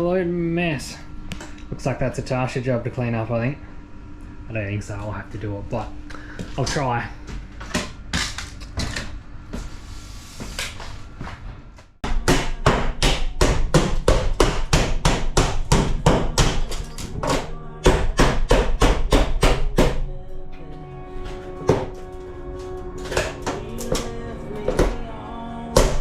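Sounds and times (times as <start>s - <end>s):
hammer striking ceiling panels: 12.0s - 20.0s.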